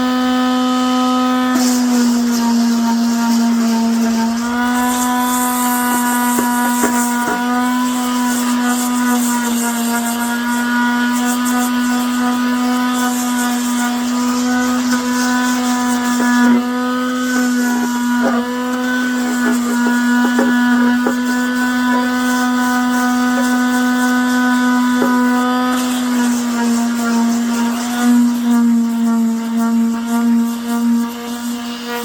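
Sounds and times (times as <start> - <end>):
power tool motor humming: 0.0 - 32.0
grinding plastic: 1.5 - 28.3.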